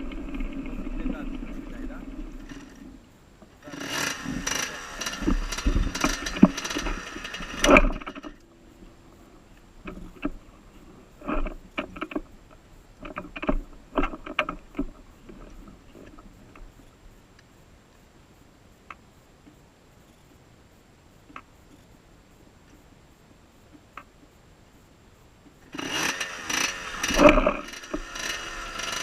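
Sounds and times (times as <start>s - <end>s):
motorbike engine running: 3.6s - 8.3s, 25.8s - 29.0s.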